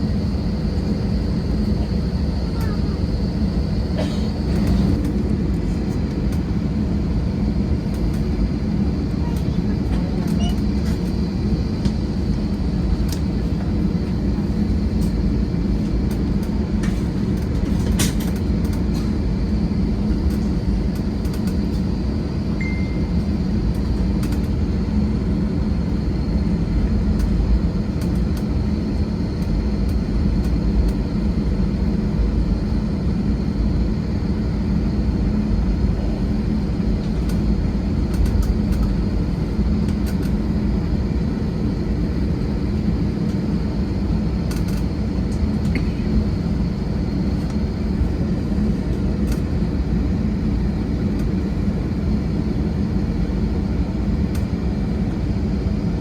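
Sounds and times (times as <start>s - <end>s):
airliner engines rumbling: 0.0s - 56.0s
faint beep: 22.6s - 23.1s.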